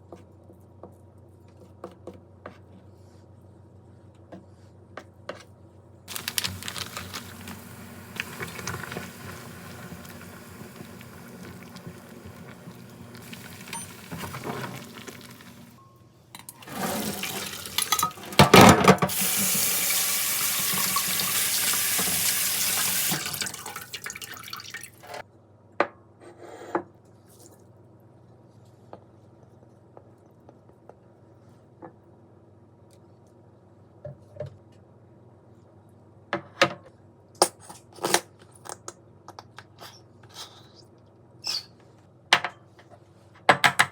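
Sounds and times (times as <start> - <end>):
tap water running into sink: 6.1 - 15.8, 16.4 - 25.2.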